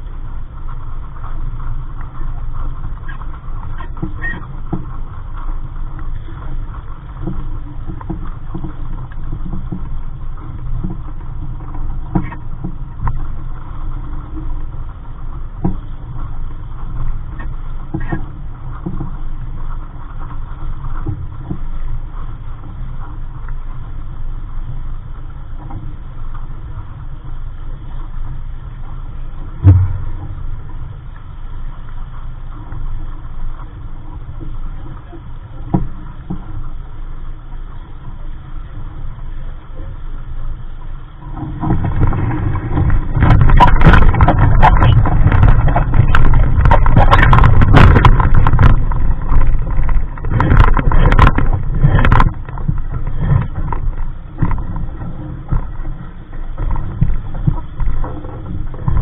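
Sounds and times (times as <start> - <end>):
water splashing against hull: 0.0 - 59.0
wind on microphone: 0.0 - 59.0
sharp thump: 29.6 - 30.7.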